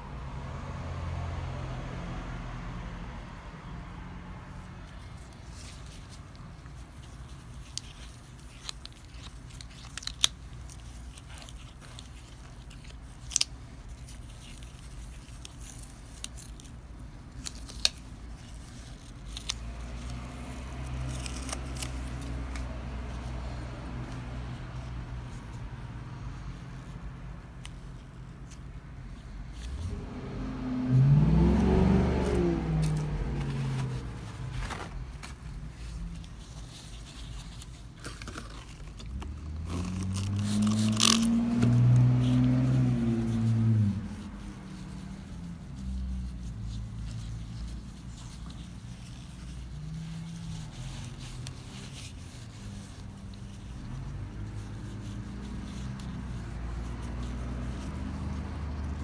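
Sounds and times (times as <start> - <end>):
car engine revving: 29.6 - 36.1, 39.3 - 47.9.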